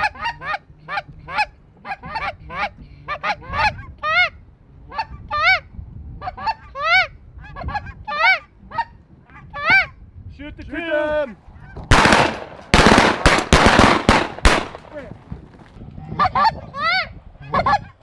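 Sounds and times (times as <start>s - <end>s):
geese honking: 0.0s - 4.3s, 6.2s - 9.9s.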